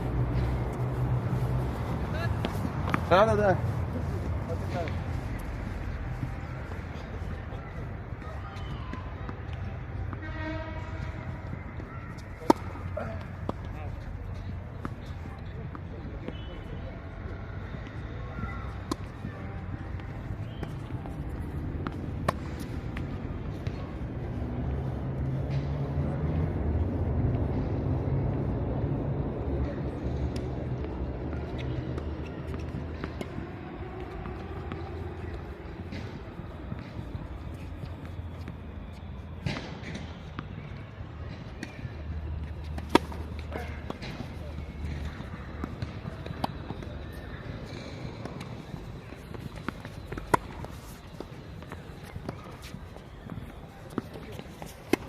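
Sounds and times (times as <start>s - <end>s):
footsteps on court: 0.0s - 16.5s, 42.4s - 55.0s
vehicle engine rumble: 0.0s - 55.0s
tennis ball bouncing on court: 11.8s - 13.8s, 18.6s - 23.8s, 42.4s - 55.0s
racket hitting tennis ball: 12.2s - 13.7s, 42.4s - 47.3s, 48.2s - 52.8s.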